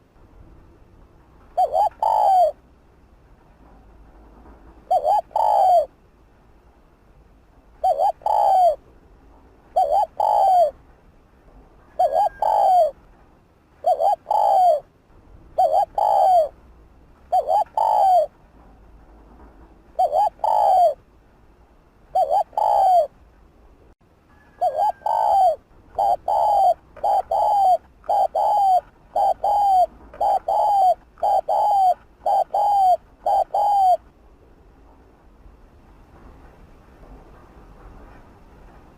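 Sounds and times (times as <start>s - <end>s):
dove cooing: 1.6s - 2.6s, 4.8s - 5.9s, 7.8s - 8.8s, 9.7s - 10.8s, 11.9s - 13.0s, 13.8s - 14.9s, 15.6s - 16.6s, 17.3s - 18.3s, 20.0s - 21.0s, 22.1s - 23.1s, 24.4s - 34.0s.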